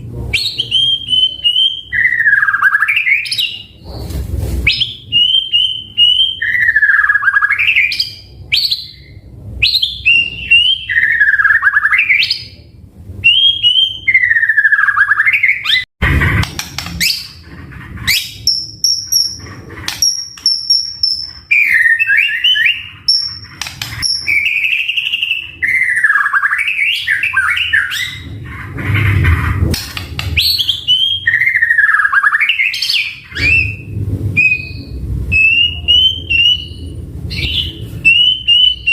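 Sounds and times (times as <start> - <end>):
bird singing whistled phrases: 0.4 - 3.7, 4.7 - 12.6, 13.2 - 15.9, 20.1 - 28.3, 30.4 - 38.9.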